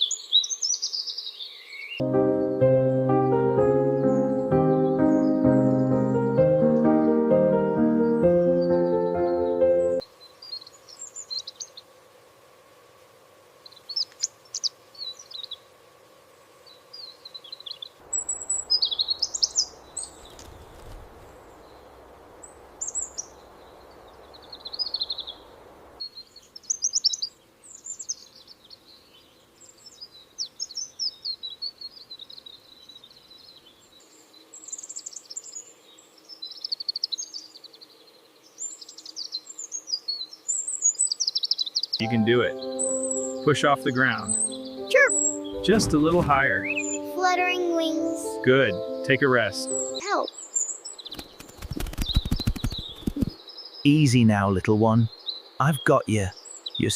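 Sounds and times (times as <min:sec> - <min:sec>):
small bird chirping: 0:00.0 - 0:02.0, 0:08.0 - 0:12.0, 0:13.6 - 0:15.7, 0:16.6 - 0:54.2, 0:54.9 - 0:56.9
steady rushing noise: 0:51.2 - 0:53.4.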